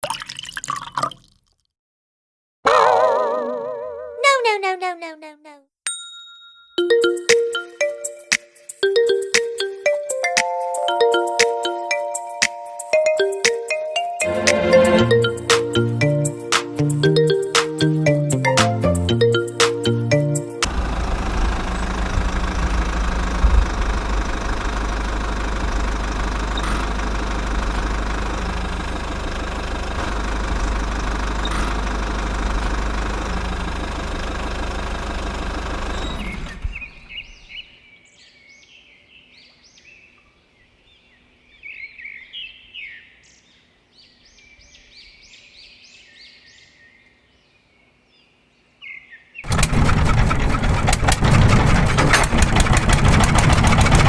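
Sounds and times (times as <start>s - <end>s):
small motor running: 20.7s - 36.6s, 49.5s - 54.0s.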